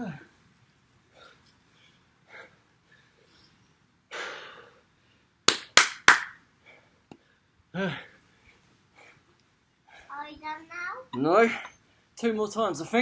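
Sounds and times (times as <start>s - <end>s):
sharp slaps: 5.5s - 6.4s.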